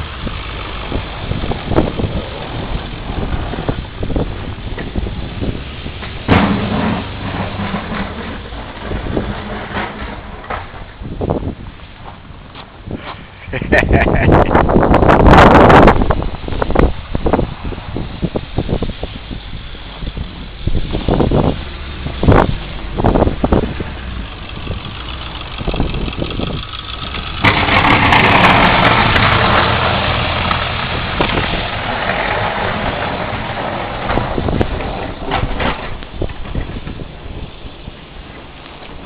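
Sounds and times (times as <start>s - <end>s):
engine starting and running: 0.0s - 11.3s, 19.9s - 37.5s
knocks and thumps: 6.0s - 11.0s.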